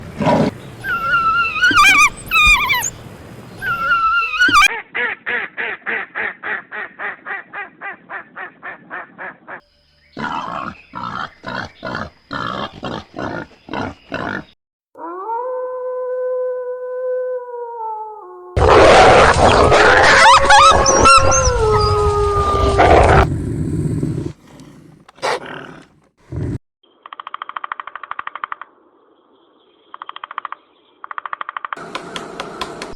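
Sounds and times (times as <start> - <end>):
warbling high animal calls: 0.4 - 3.0, 3.6 - 4.7, 18.6 - 23.3, 24.4 - 25.8
steady pitched animal call: 0.8 - 3.0, 3.6 - 4.7, 19.3 - 26.6
rapid grunting pulses: 22.8 - 26.6.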